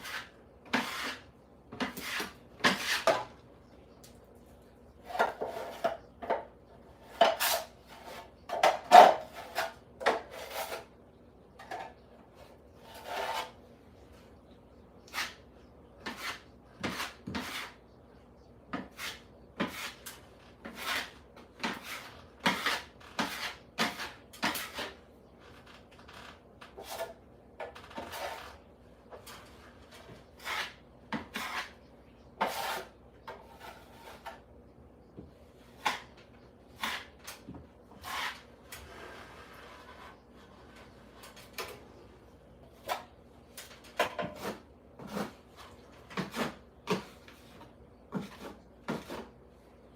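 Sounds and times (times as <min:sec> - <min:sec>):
hand tool scraping a surface: 0:00.0 - 0:03.3, 0:12.8 - 0:13.6, 0:18.8 - 0:25.0, 0:26.7 - 0:31.8, 0:32.4 - 0:34.4, 0:36.8 - 0:41.3.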